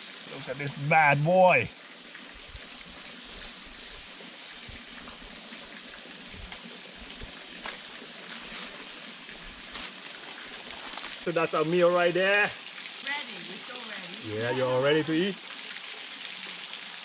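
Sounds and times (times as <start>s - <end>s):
running water hissing: 0.0s - 17.0s.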